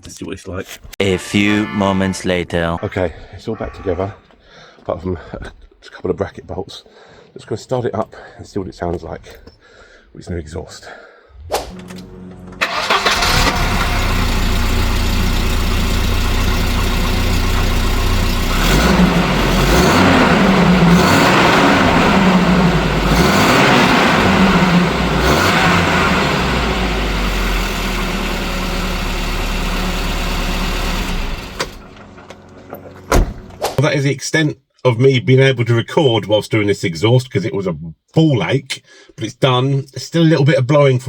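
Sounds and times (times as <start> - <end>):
car engine starting and revving: 11.5 - 33.6
exhaust leak blowing: 12.6 - 31.9.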